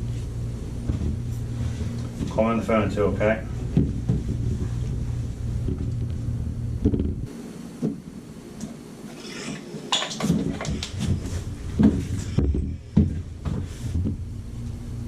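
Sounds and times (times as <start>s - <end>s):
low steady rumble: 0.0s - 9.0s, 10.7s - 15.0s.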